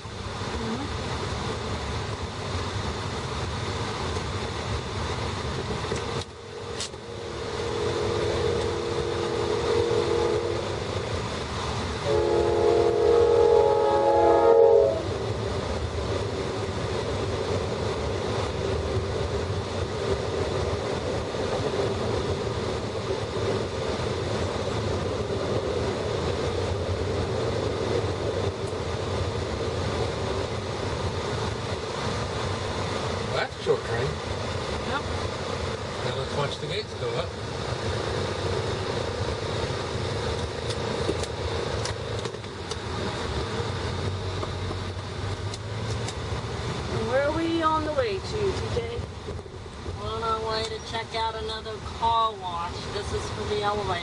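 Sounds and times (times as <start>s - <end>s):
train cars rumbling and clattering: 0.0s - 54.0s
train horn blasts: 7.1s - 10.8s, 12.0s - 15.1s.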